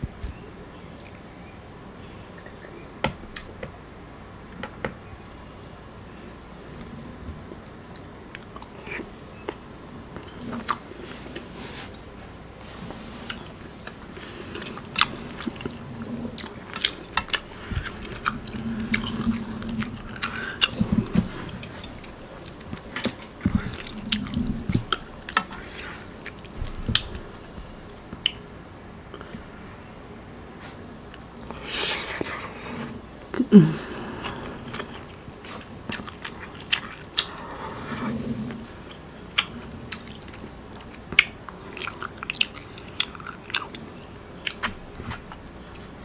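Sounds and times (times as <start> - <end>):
chewing with wet mouth smacks: 13.3 - 28.4, 34.7 - 37.4, 38.9 - 46.0.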